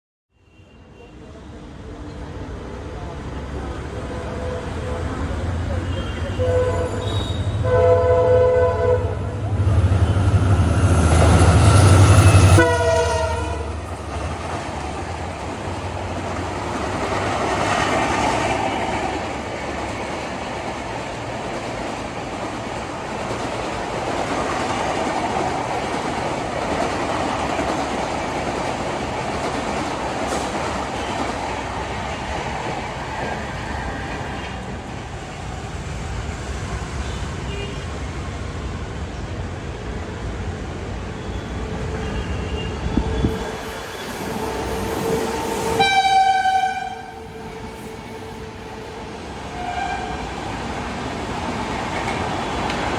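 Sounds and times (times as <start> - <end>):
train coaches rolling on rails: 1.0 - 52.9
locomotive horn: 4.1 - 10.2, 12.2 - 13.8, 42.0 - 50.4.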